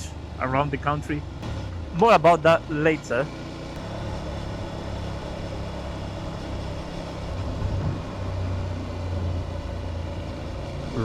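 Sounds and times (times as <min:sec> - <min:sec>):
motorcycle engine running: 0:01.2 - 0:11.0
rush of wind noise: 0:07.4 - 0:08.2.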